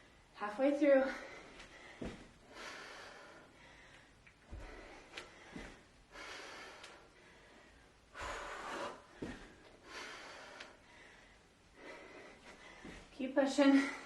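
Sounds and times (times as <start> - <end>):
woman breathing hard: 1.0 - 14.0.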